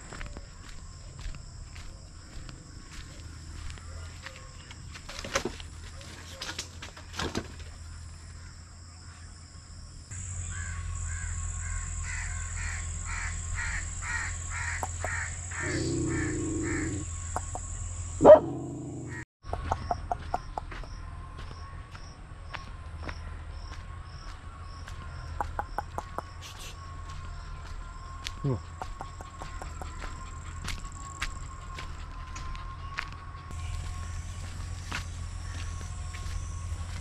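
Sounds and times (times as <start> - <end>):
bird calling: 10.1 - 21.8, 24.8 - 37.0.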